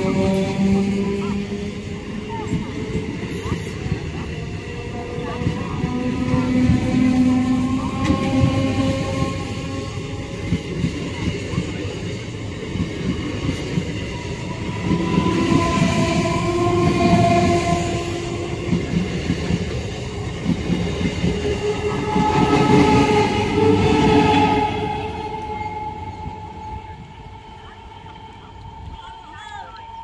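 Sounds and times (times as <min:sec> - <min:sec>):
train wheels clattering on rails: 0:00.0 - 0:29.0
train rumble: 0:00.0 - 0:30.0.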